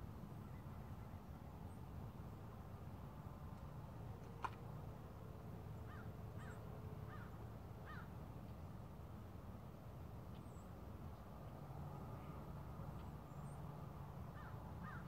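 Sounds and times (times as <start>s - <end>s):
bird calling: 14.4s - 15.0s.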